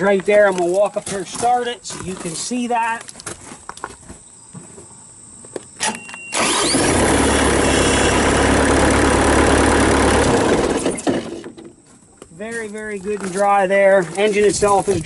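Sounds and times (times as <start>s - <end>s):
short high beep: 5.8s - 6.4s
diesel engine cranking and running: 6.3s - 11.8s.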